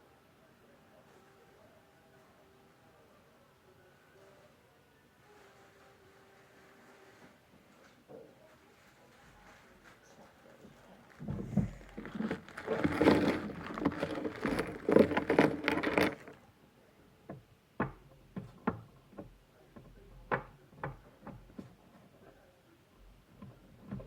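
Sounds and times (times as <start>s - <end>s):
packaging crackling and rustling: 11.1s - 16.4s.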